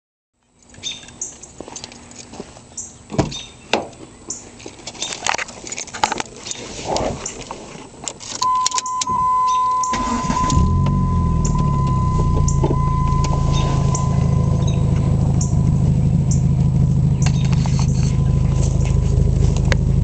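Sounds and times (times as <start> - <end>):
electronic chime tone: 8.4 - 16.5
car engine starting and running: 8.4 - 20.0.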